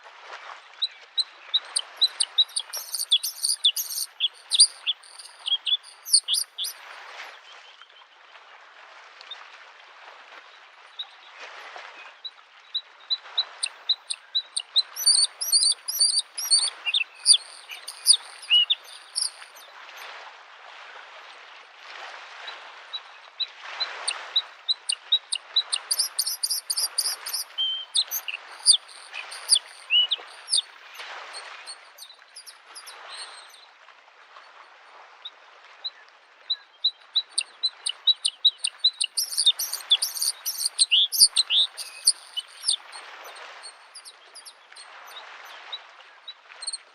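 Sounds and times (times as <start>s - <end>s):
bird singing high chirps: 1.8s - 6.8s, 13.9s - 19.6s, 25.2s - 30.7s, 31.7s - 33.4s, 37.4s - 43.1s, 43.8s - 44.5s
lake waves lapping shore: 13.5s - 22.8s, 23.6s - 33.5s, 37.5s - 46.6s.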